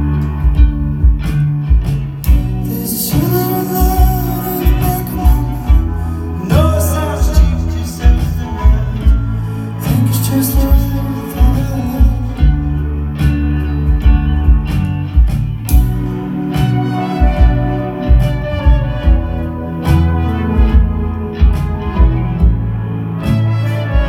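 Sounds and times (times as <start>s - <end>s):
kick drum beat: 0.0s - 2.7s, 3.8s - 6.2s, 7.2s - 9.4s, 10.6s - 12.8s, 13.9s - 16.2s, 17.2s - 22.9s
live band playing: 0.0s - 24.0s.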